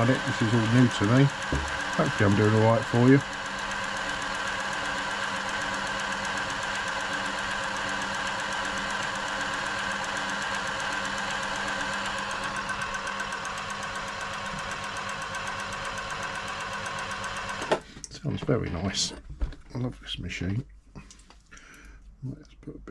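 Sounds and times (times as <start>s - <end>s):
sewing machine running: 0.0s - 17.8s.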